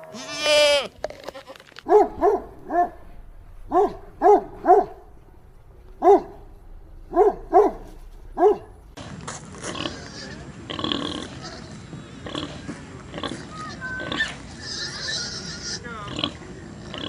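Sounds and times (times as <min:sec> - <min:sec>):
dog barking: 0:01.9 - 0:08.9
steady background noise: 0:01.9 - 0:09.2.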